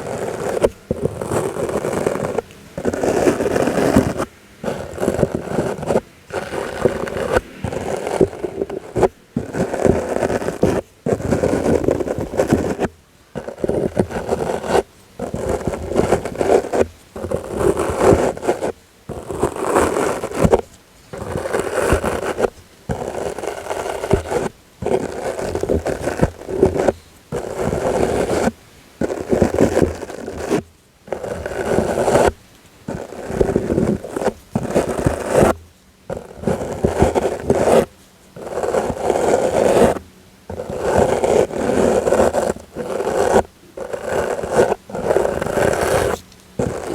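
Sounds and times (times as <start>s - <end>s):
soft brush swishing: 0.0s - 18.6s.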